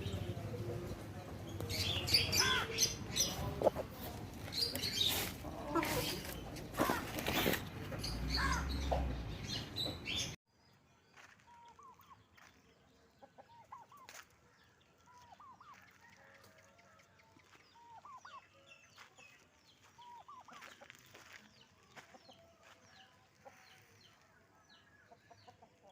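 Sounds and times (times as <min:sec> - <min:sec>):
chickens clucking: 0:00.0 - 0:10.4, 0:25.0 - 0:25.9.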